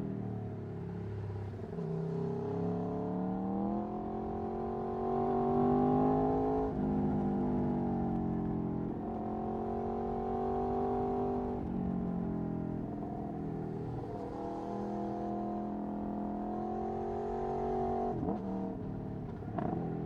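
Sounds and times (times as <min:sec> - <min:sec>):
motorcycle engine accelerating hard: 0:13.3 - 0:20.0.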